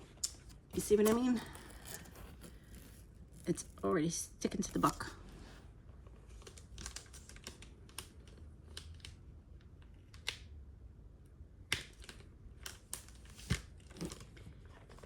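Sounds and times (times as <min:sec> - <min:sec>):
plastic bag rustling: 0:00.4 - 0:05.6.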